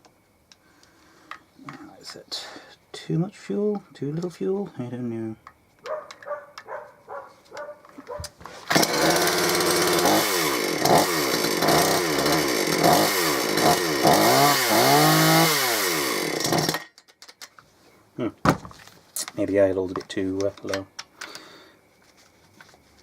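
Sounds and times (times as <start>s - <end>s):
chainsaw engine revving: 8.6s - 16.8s.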